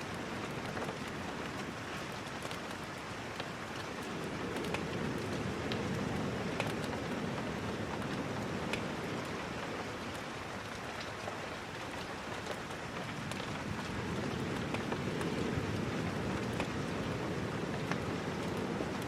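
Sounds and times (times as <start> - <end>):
sharp rain ticks: 0.0 - 19.0
steady rain falling: 0.0 - 19.0.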